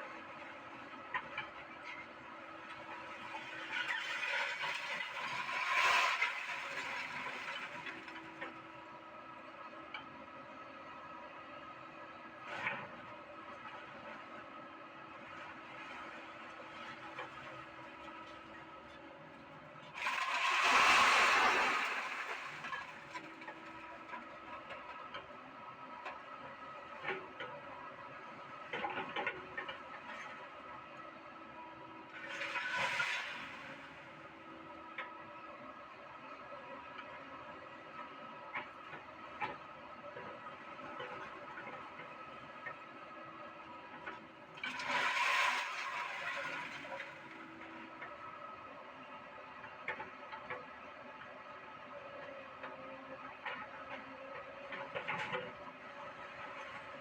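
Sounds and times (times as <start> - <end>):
excavator engine and hydraulic whine: 0.0 - 57.0.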